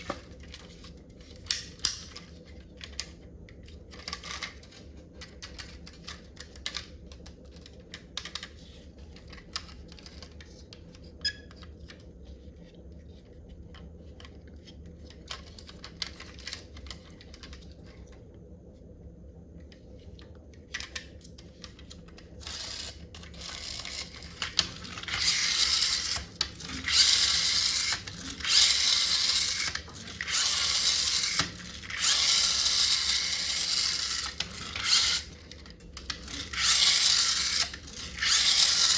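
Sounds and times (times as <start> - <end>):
toy car motor whirring: 22.3 - 38.9.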